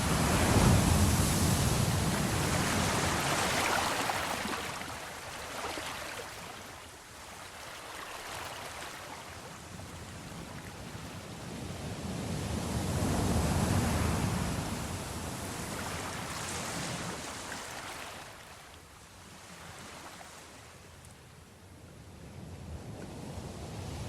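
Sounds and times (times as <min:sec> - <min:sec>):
sea waves washing: 0:00.0 - 0:10.3.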